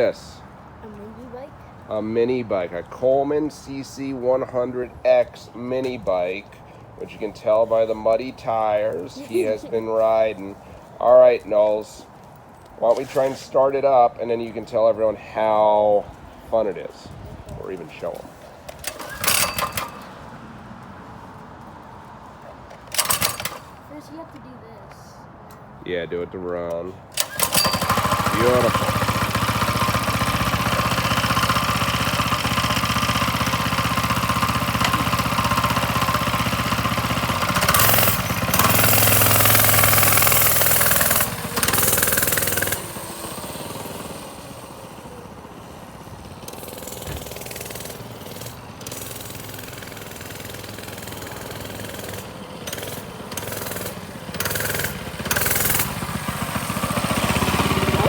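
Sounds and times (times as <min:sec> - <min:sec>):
small engine running and revving: 0:27.2 - 0:58.0.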